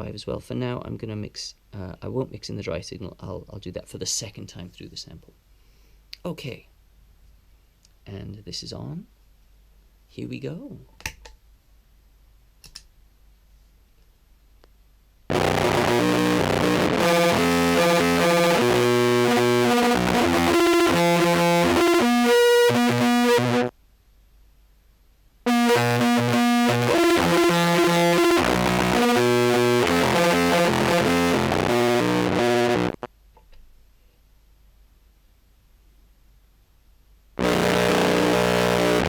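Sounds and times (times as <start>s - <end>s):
fuzzed distorted low clarinet tone: 15.3s - 23.7s, 25.5s - 33.1s, 37.4s - 39.0s.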